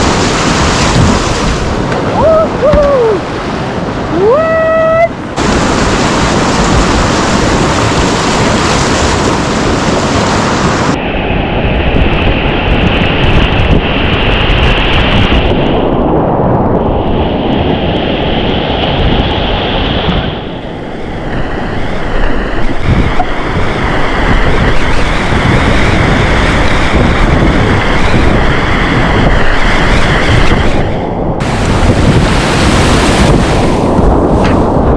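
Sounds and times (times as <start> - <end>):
whitewater rapids rushing: 0.0 - 11.0
wind buffeting microphone: 0.0 - 34.9.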